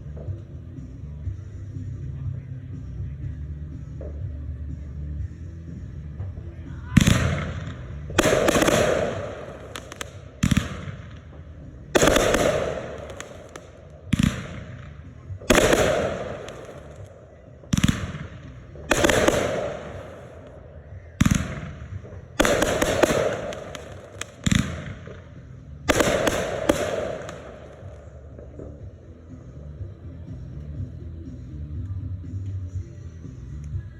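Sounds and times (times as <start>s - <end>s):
firework shell bursting: 7.0s - 17.1s, 21.2s - 28.7s.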